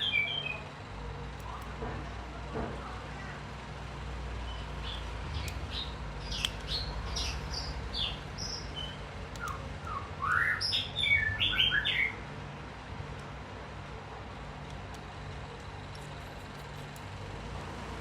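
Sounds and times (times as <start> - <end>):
small songbird chirping: 0.0 - 0.7, 4.4 - 12.3
steady low hum: 0.0 - 18.0.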